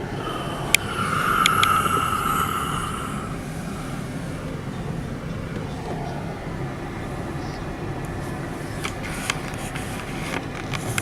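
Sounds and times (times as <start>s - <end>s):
high hum: 0.0s - 5.0s
car road and engine noise: 0.0s - 11.0s.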